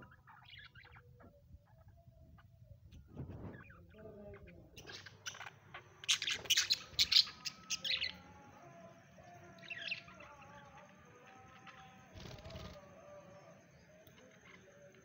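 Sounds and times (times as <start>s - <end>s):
budgerigars chirping: 0.0s - 1.9s, 3.4s - 8.2s, 9.6s - 12.8s.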